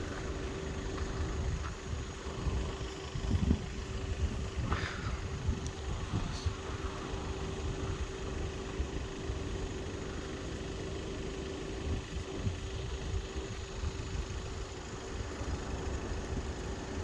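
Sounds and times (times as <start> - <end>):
vehicle engine idling: 0.0 - 17.0
wind on microphone: 1.1 - 6.8.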